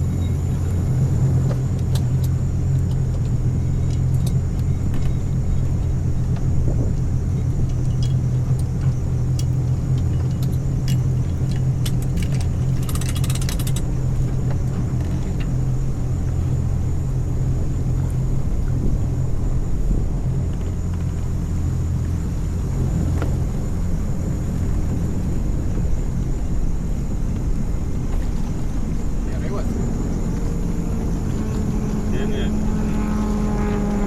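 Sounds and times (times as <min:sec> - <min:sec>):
vehicle engine and road rumble: 0:00.0 - 0:34.0
metallic jingle of keys: 0:09.4 - 0:13.9
small clicks: 0:09.4 - 0:13.9.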